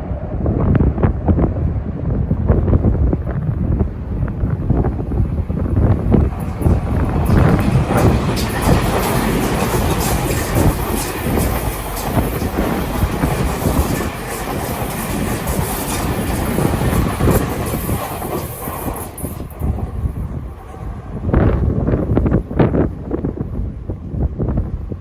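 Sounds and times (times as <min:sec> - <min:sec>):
electric train passing: 0:00.0 - 0:25.0
wheels clattering over rail joints: 0:02.7 - 0:22.5.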